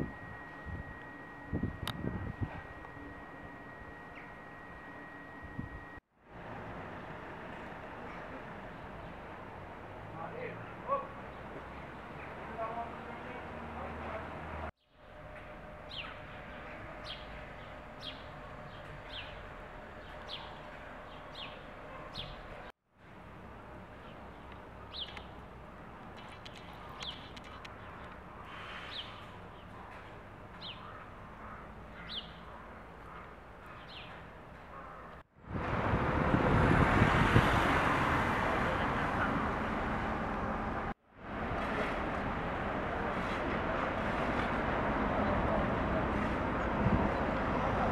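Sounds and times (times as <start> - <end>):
bird chirping: 0.0 - 6.0, 15.8 - 22.7, 24.0 - 25.4, 26.2 - 35.2
outdoor background noise: 0.0 - 47.9
steady road noise: 0.0 - 47.9.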